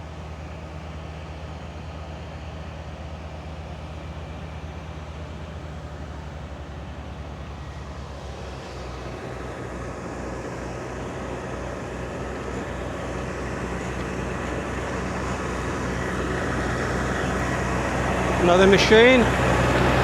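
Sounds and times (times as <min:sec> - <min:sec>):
lawn mower engine running: 0:09.1 - 0:20.0.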